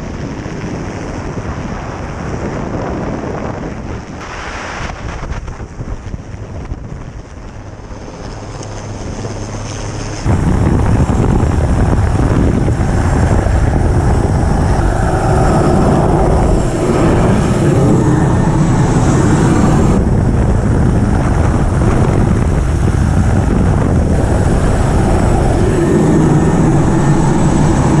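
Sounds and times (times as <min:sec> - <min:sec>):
helicopter rotor and engine: 0:07.6 - 0:28.0.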